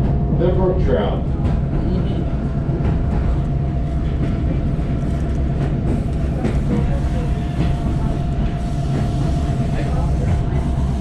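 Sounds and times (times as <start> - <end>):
constant hum: 0.0 - 11.0
train coach rumbling on track: 0.0 - 11.0.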